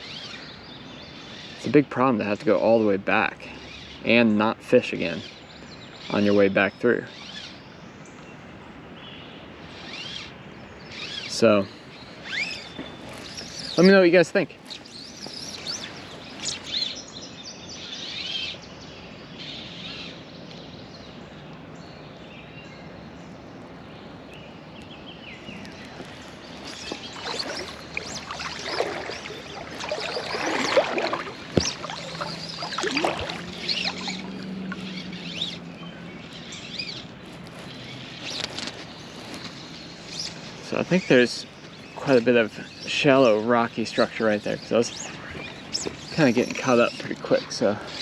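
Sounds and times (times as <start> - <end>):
birds calling: 0.0 - 48.0
creek water running: 11.0 - 17.0, 25.4 - 48.0
water splashes: 25.5 - 36.5.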